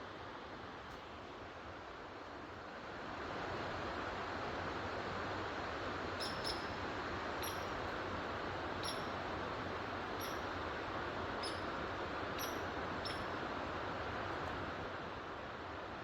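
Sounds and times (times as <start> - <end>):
small bird chirping: 6.2 - 6.8, 7.4 - 7.8, 8.8 - 9.2, 10.2 - 10.6, 11.4 - 11.8, 12.4 - 13.4.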